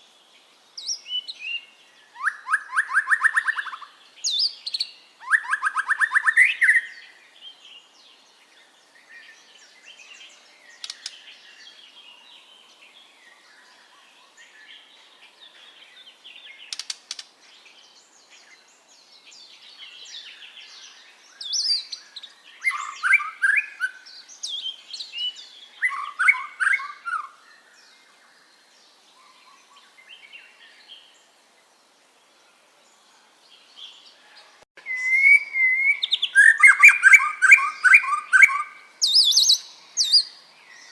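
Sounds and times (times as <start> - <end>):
bird singing whistled phrases: 0.9 - 7.0, 20.2 - 27.4, 34.8 - 40.9.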